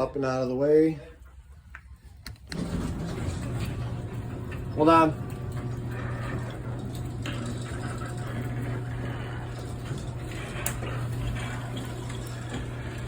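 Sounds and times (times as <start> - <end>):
door rollers rattling: 2.4 - 13.0
garage door opener motor hum: 2.4 - 13.0.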